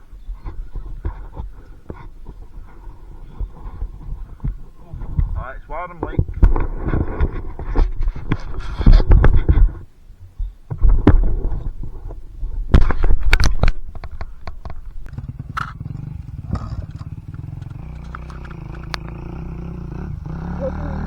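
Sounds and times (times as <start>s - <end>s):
wind buffeting microphone: 0.0s - 21.0s
dirt bike engine revving: 15.1s - 21.0s.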